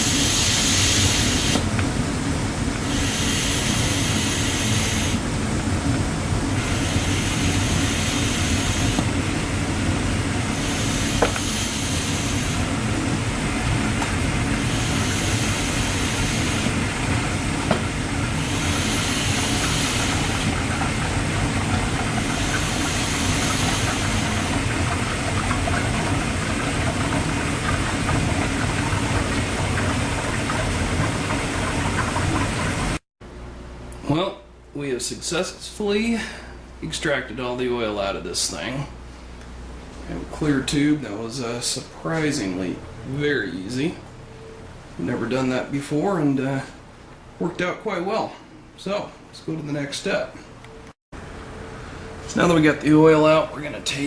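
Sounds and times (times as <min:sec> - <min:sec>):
hiss: 0:00.0 - 0:01.6, 0:02.9 - 0:05.2, 0:06.6 - 0:09.1, 0:10.5 - 0:12.7, 0:14.6 - 0:16.7, 0:18.4 - 0:20.5, 0:22.2 - 0:24.6
oil and air gurgling through hose: 0:00.0 - 0:33.0.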